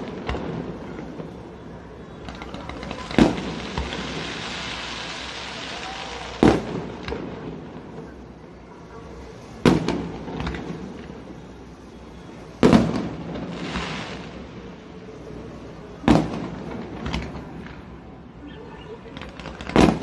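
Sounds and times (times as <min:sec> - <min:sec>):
small firework pops: 0:00.0 - 0:01.4, 0:02.2 - 0:08.0, 0:09.6 - 0:11.3, 0:12.6 - 0:14.4, 0:16.0 - 0:18.0, 0:19.1 - 0:20.0
firework hiss: 0:00.0 - 0:08.4, 0:09.1 - 0:18.1.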